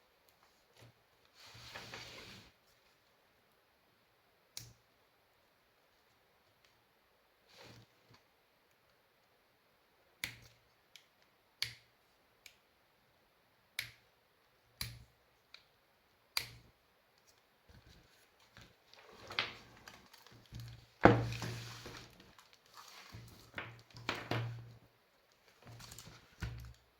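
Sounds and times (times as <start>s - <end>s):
rustling and scraping: 1.4s - 3.0s, 17.7s - 24.7s.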